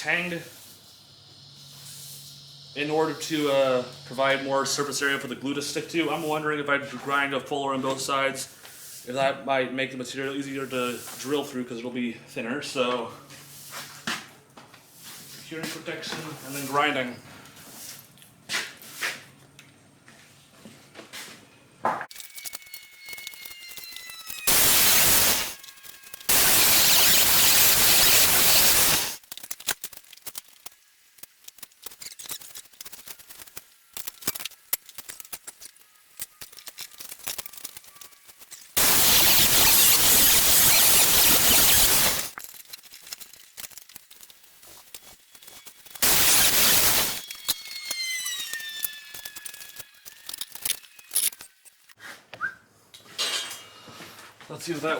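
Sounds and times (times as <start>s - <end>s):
grinder grinding steel: 0.0s - 6.5s, 22.1s - 29.2s, 31.3s - 52.0s
grinder whine winding down: 22.2s - 29.2s, 38.8s - 42.3s, 45.0s - 51.9s.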